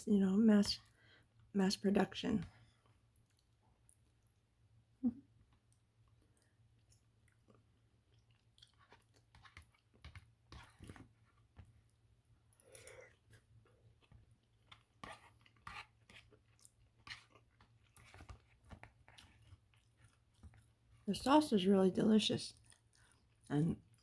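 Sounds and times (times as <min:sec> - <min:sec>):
faint chewing mouth sounds: 0:02.5 - 0:04.6, 0:05.2 - 0:21.1, 0:22.5 - 0:24.0.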